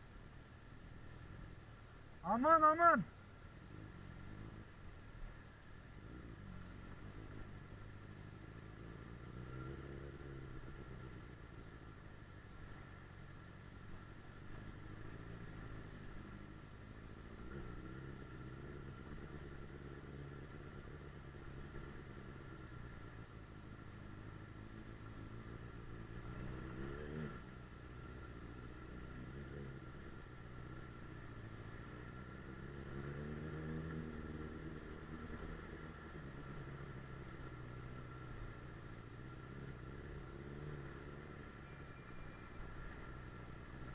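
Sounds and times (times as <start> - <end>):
motorcycle engine revving: 3.6 - 4.9, 6.0 - 13.0, 13.7 - 43.9.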